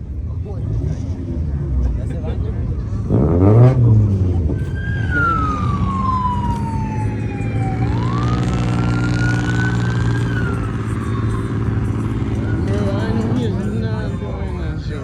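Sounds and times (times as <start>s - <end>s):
engine hum: 0.0s - 15.0s
short engine rev: 3.0s - 4.6s
police siren wailing: 3.2s - 15.0s.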